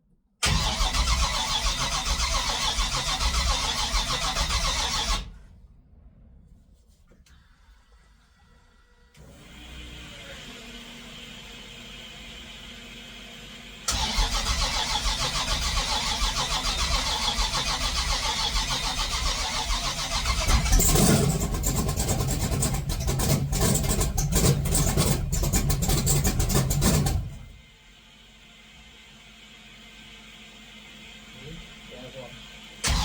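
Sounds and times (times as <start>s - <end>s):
starter motor cranking: 0.4s - 5.3s, 13.9s - 27.5s
engine popping: 13.9s - 27.6s.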